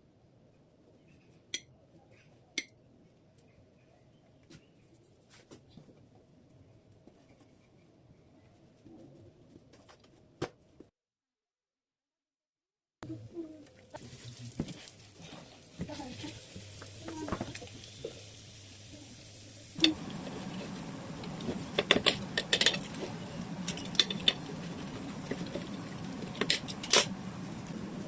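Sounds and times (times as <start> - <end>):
utensils clinking against dishes: 19.8 - 27.2
steady hum: 19.8 - 28.0.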